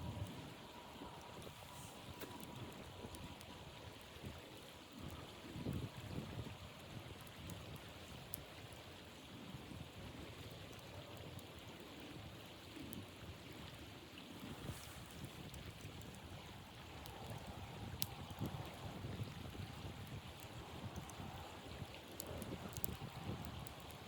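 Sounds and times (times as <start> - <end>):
wind blowing: 14.4 - 24.0
faint ticks: 22.2 - 24.0.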